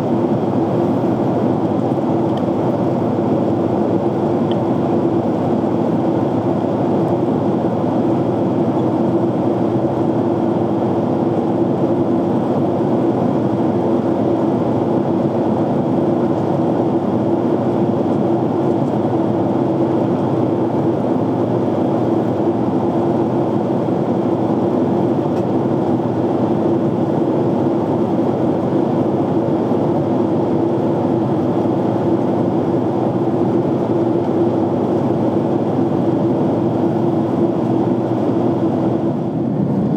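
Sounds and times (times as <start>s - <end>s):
constant low hum: 0.0s - 39.9s
jet cabin engine and airflow rush: 0.0s - 39.9s.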